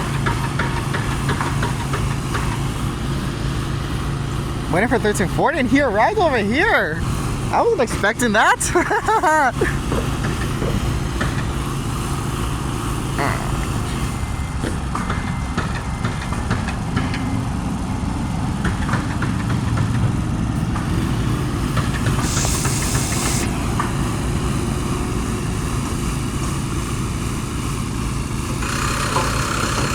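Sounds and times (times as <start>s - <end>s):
diesel engine idling: 0.0s - 29.9s
short hiss: 21.9s - 23.5s.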